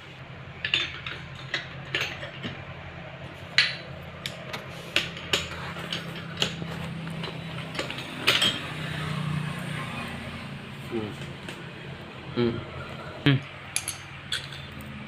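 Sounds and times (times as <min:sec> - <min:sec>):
steady low hum: 0:00.0 - 0:15.0
metal tools clinking: 0:00.6 - 0:02.6, 0:05.1 - 0:09.0, 0:13.7 - 0:14.9.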